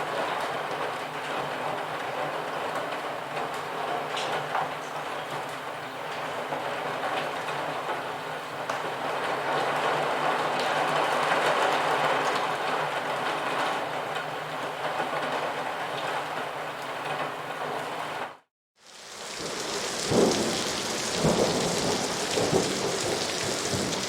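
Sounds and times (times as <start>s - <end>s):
rain hiss: 18.8s - 24.0s
raindrops ticking: 18.8s - 24.0s.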